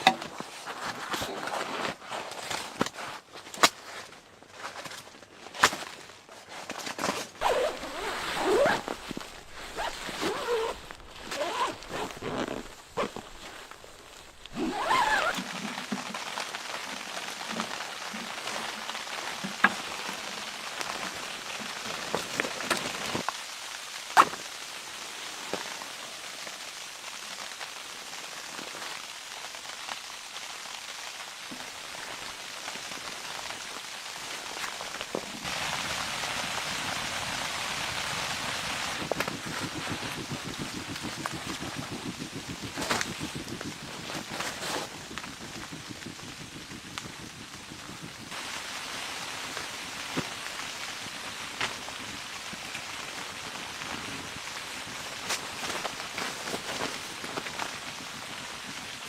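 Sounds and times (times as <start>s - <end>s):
pattering precipitation: 7.4s - 59.0s
rustling and knocking: 39.0s - 48.3s.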